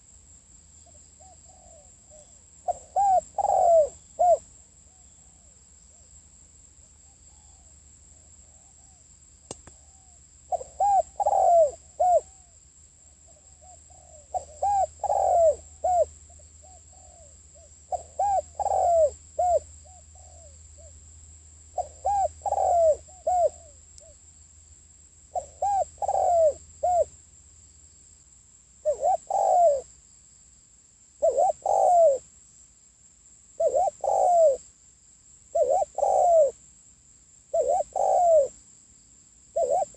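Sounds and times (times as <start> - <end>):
dove cooing: 1.2 - 6.0, 9.6 - 12.6, 13.3 - 21.0, 21.8 - 24.2, 25.3 - 27.1, 28.8 - 29.9, 31.2 - 32.3, 33.6 - 34.6, 35.5 - 36.6, 37.5 - 38.6, 39.5 - 39.9.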